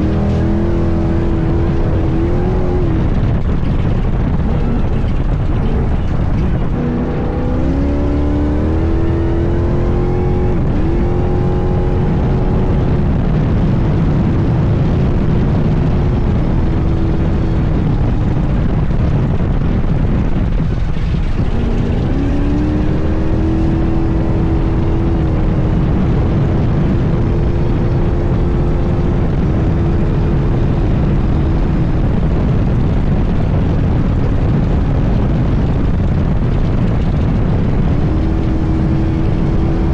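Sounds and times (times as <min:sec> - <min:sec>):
race car engine pulling hard: 0:00.0 - 0:39.9
wind and terrain rumble: 0:00.0 - 0:39.9.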